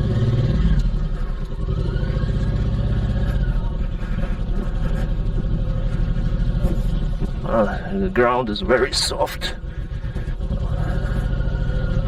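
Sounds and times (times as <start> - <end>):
v-twin motorcycle engine running: 0.0 - 12.0.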